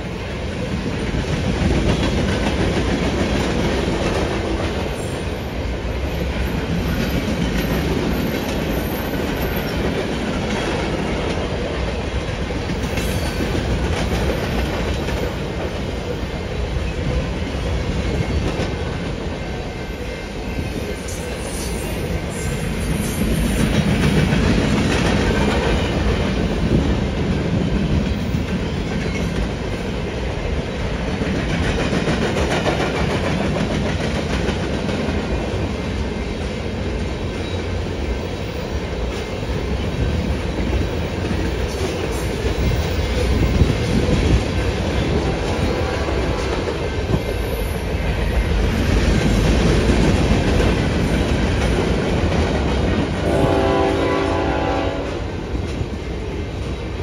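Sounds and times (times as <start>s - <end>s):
train wheels clattering on rails: 0.0s - 57.0s.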